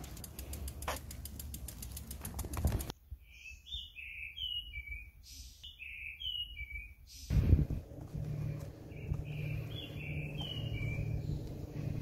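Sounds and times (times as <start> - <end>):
rapid even ticking: 0.0 - 2.9
bird chirping: 3.1 - 7.3, 8.8 - 11.8
low rumble: 7.3 - 12.0.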